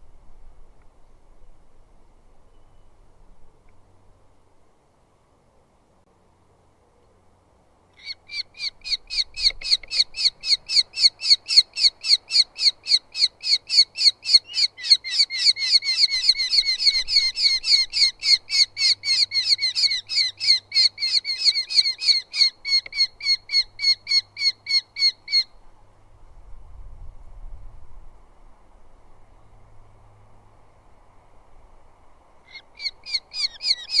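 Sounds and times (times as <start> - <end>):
bird rapid repeated calls: 8.0 - 25.5, 32.5 - 34.0.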